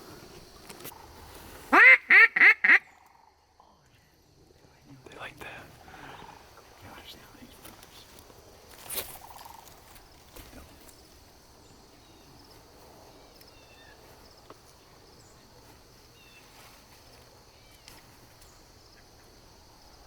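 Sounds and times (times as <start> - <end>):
faint bird chirps: 8.9 - 15.4, 16.1 - 16.8, 17.5 - 19.4.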